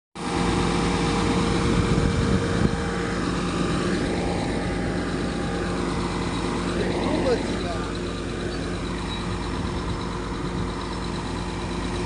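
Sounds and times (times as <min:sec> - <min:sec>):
vehicle engine running steadily: 0:00.2 - 0:12.0.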